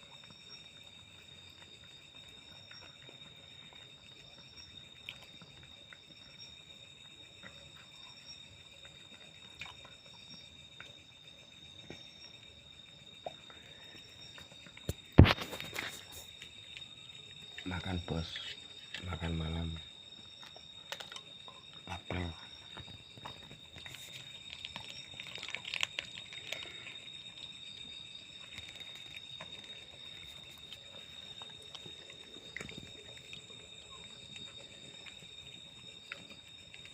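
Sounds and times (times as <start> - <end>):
insects chirring: 0.0 - 36.9
cat eating clicks and crunches: 20.3 - 21.9, 22.6 - 36.9.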